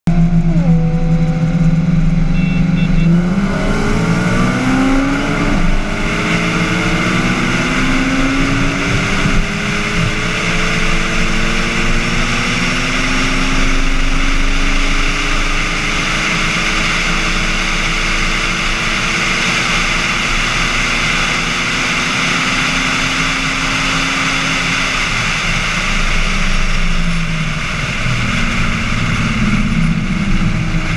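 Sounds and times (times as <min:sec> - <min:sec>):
engines revving at full throttle: 0:00.1 - 0:30.9
heavy wind rush: 0:03.2 - 0:20.2.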